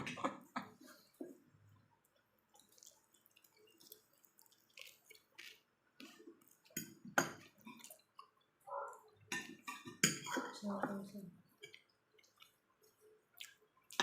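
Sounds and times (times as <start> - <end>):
person chewing with wet mouth clicks: 2.1 - 7.0, 11.6 - 14.0.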